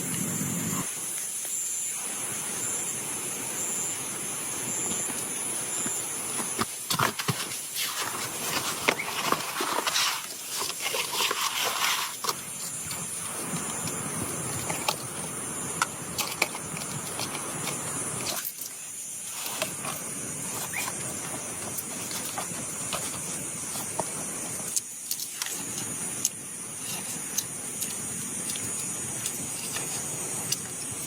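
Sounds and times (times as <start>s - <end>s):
insect drone: 0.0s - 31.0s
rain hiss: 0.0s - 31.0s
crackling and rustling: 4.8s - 31.0s.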